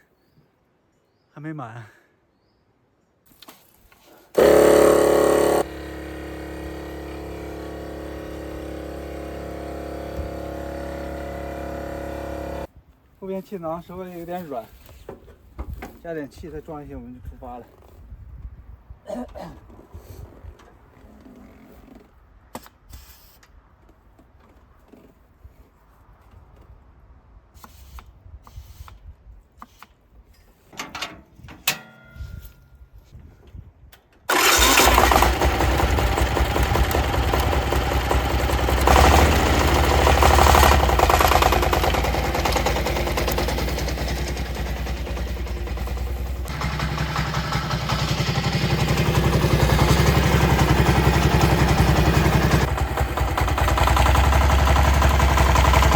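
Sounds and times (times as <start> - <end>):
engine running: 4.4 - 12.7, 34.3 - 55.9.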